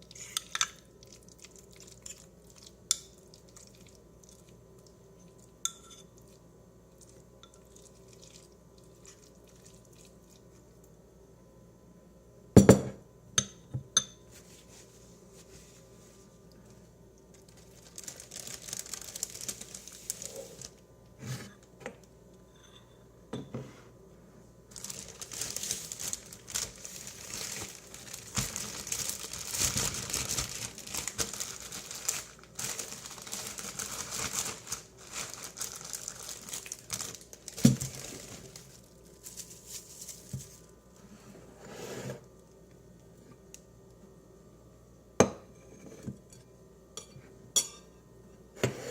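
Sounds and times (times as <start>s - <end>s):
packaging crinkling: 17.3s - 20.8s, 24.7s - 40.7s.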